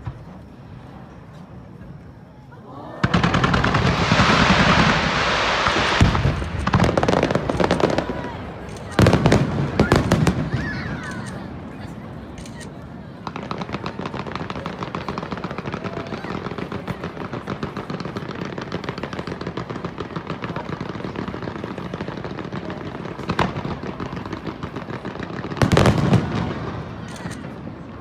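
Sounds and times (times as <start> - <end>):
fireworks crackling: 0.0 - 28.0
firework shell bursts: 3.0 - 11.5.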